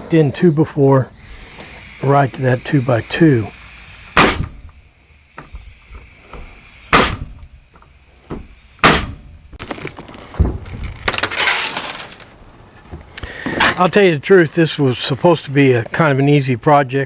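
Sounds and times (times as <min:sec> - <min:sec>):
hammer striking nails: 0:04.2 - 0:04.6, 0:06.3 - 0:07.4, 0:08.3 - 0:09.3
wood clatter: 0:07.8 - 0:13.9.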